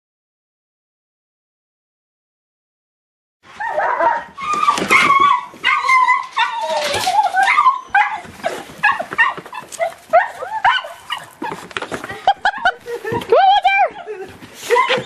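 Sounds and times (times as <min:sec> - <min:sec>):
puppy yipping: 0:03.6 - 0:11.7
puppy whining: 0:03.6 - 0:11.8, 0:13.8 - 0:15.0.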